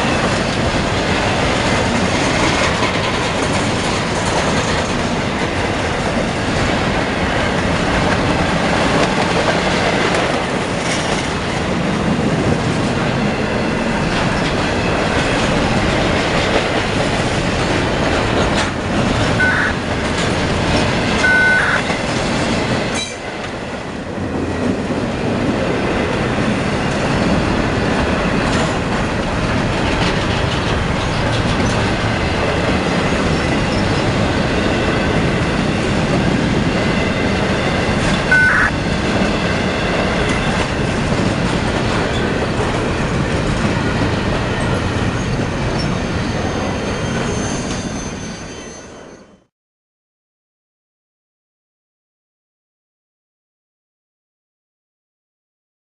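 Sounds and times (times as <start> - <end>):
wheels clickety-clack over joints: 0.0 - 48.2
train wheels rumbling on rail: 0.0 - 49.5
wheel squeals: 44.6 - 49.4.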